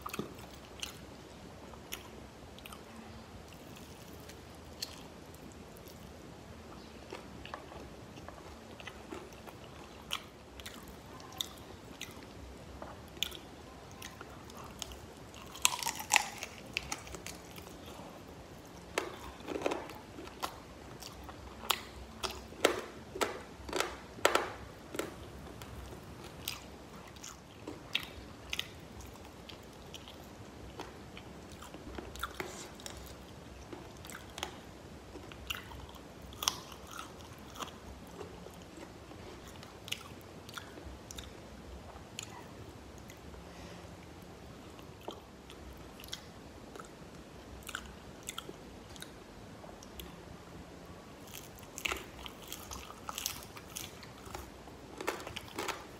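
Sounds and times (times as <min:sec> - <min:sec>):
chewing crispy fried chicken: 0:07.1 - 0:22.6, 0:24.9 - 0:41.3, 0:51.2 - 0:55.9.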